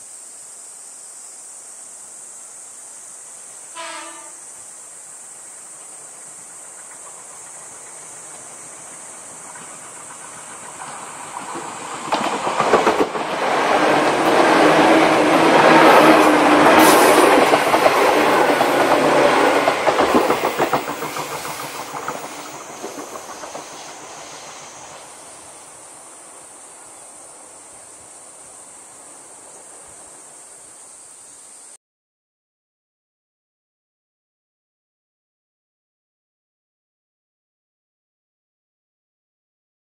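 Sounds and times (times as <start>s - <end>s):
steady high hiss: 0.0s - 31.8s
electric train passing: 3.0s - 30.9s.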